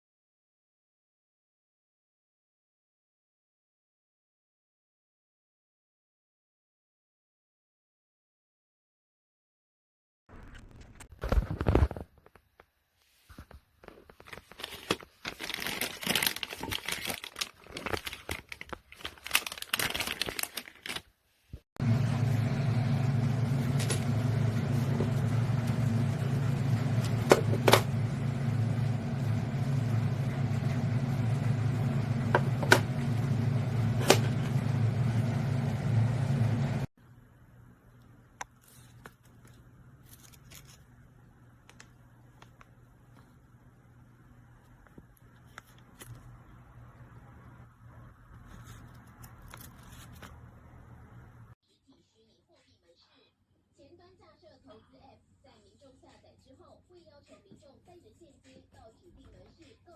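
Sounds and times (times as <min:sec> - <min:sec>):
plastic packaging crinkling: 0:13.8 - 0:21.2
steady low hum: 0:21.8 - 0:40.2.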